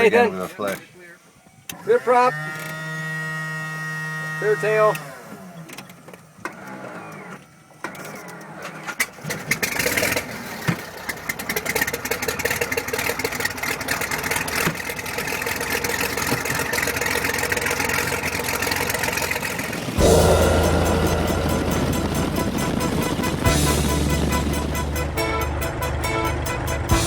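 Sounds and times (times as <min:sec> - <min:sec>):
light aircraft engine starting: 0:01.7 - 0:20.8.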